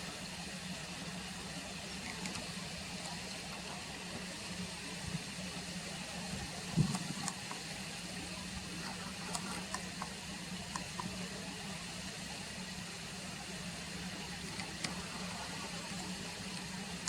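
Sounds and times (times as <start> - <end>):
faint ticks: 8.8 - 11.2.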